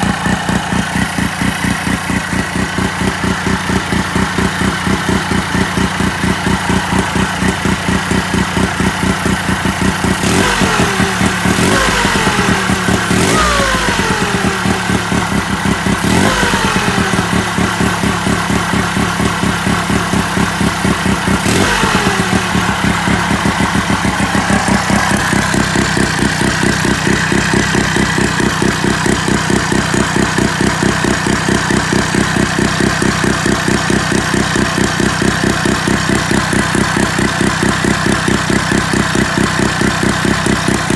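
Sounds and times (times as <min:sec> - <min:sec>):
rotary engine revving: 0:00.0 - 0:40.9.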